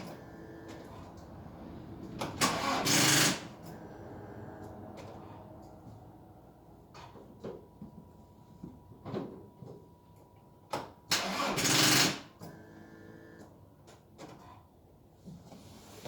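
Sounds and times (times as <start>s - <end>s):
starter motor cranking: 2.4s - 3.5s, 11.1s - 12.2s.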